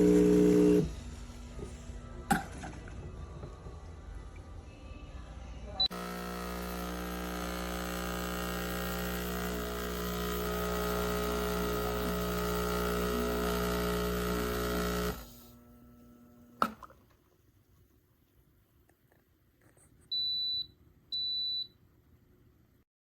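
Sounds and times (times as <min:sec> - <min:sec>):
espresso machine pump buzzing: 0:00.0 - 0:01.0, 0:05.9 - 0:16.9.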